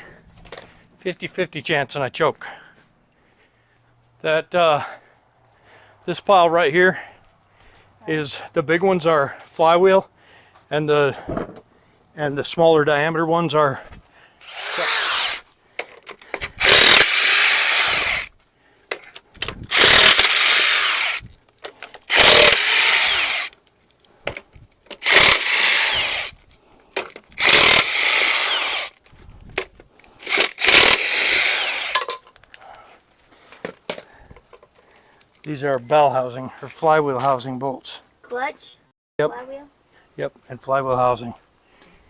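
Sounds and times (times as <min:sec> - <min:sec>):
power tool bursts: 0:14.4 - 0:15.4, 0:16.4 - 0:18.3, 0:19.7 - 0:21.2, 0:22.1 - 0:23.5, 0:25.0 - 0:26.4, 0:27.4 - 0:29.0, 0:30.2 - 0:32.1.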